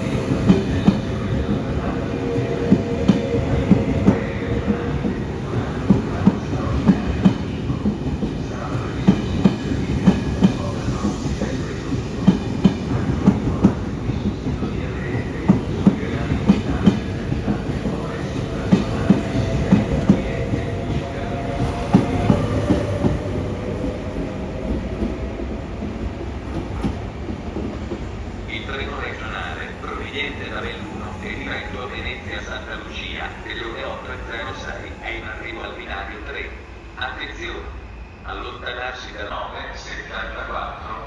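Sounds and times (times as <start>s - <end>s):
train wheels clacking: 0.0s - 28.1s.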